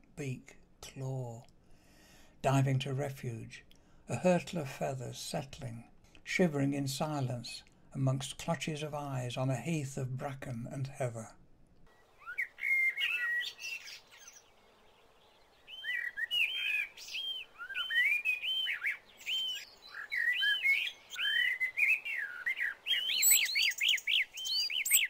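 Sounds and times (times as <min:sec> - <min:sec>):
songbird whistling phrases: 0:11.9 - 0:14.5, 0:15.5 - 0:25.0.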